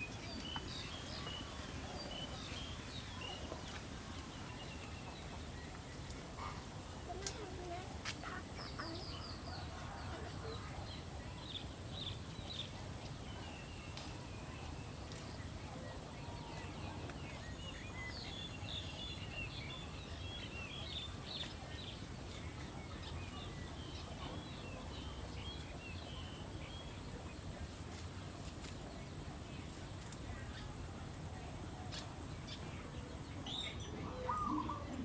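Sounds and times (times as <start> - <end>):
birds chirping: 31.6 - 35.0.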